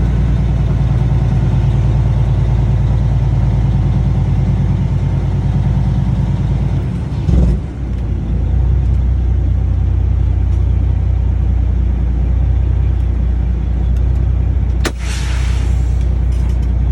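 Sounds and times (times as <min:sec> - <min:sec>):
diesel engine droning: 0:00.0 - 0:16.9
short hiss: 0:14.9 - 0:16.2.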